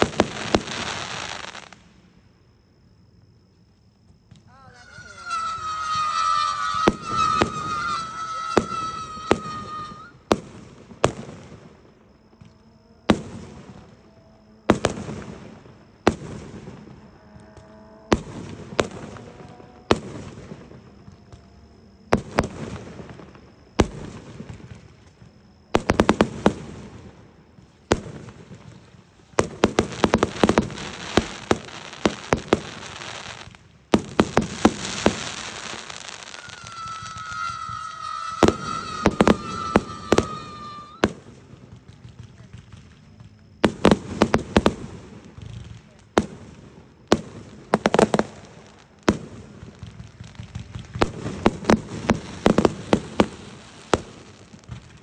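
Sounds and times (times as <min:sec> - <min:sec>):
firework bangs: 0:00.0 - 0:02.0, 0:04.3 - 0:12.5, 0:14.7 - 0:21.4, 0:22.1 - 0:25.2, 0:25.8 - 0:55.0
firework crackling: 0:00.0 - 0:02.1, 0:04.3 - 0:12.4, 0:25.7 - 0:55.0
high whistle: 0:04.5 - 0:10.3, 0:35.2 - 0:41.2.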